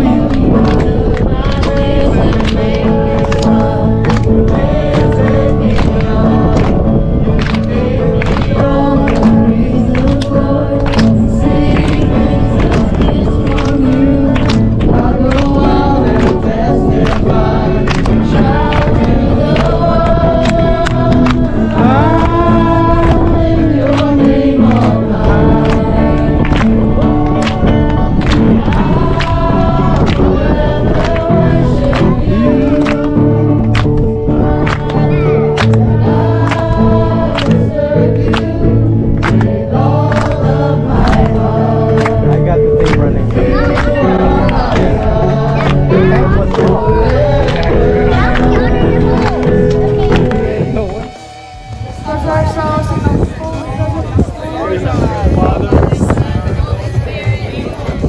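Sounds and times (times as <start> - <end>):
voices singing together: 0.0 - 58.0.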